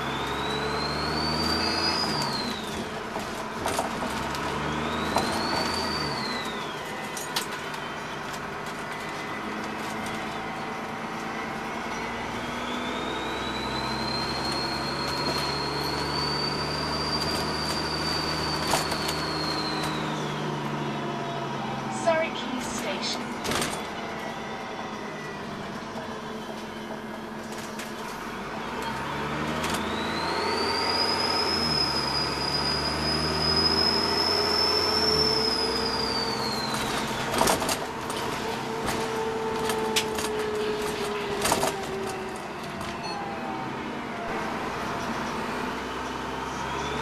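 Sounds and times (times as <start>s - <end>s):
bus diesel engine running: 0.0s - 47.0s
high turbo whistle: 11.9s - 20.5s, 29.6s - 37.4s.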